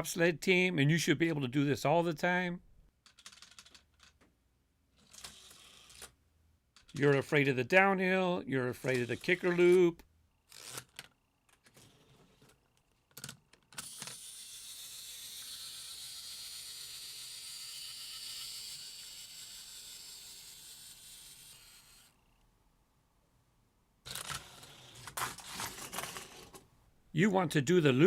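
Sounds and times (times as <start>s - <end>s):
toy car rolling on plastic track: 3.0s - 4.2s, 4.9s - 6.2s, 10.5s - 22.1s, 24.1s - 26.6s.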